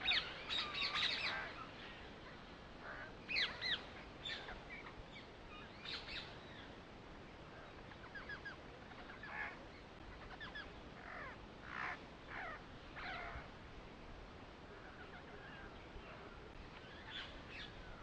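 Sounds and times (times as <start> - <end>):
birds chirping: 0.0 - 6.8, 7.4 - 13.6, 14.7 - 18.0
downward-sweeping bird calls: 0.0 - 6.8, 7.5 - 13.5
faint steady hiss: 0.0 - 18.0.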